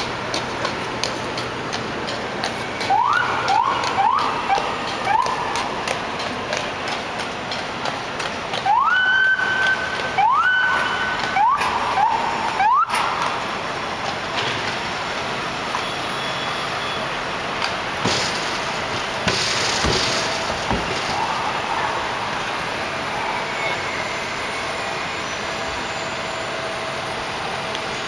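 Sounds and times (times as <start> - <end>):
city street traffic: 0.0 - 28.0
electronic siren whooping: 2.9 - 5.6, 8.7 - 13.2.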